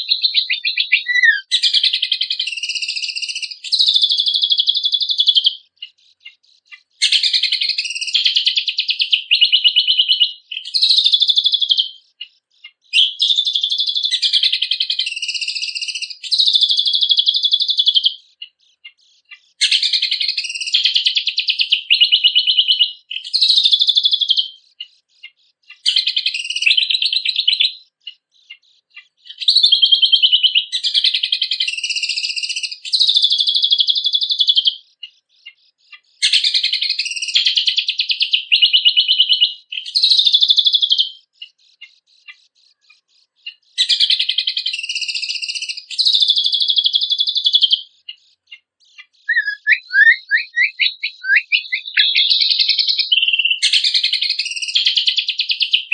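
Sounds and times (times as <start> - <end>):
songbird chattering song: 0.0 - 55.9.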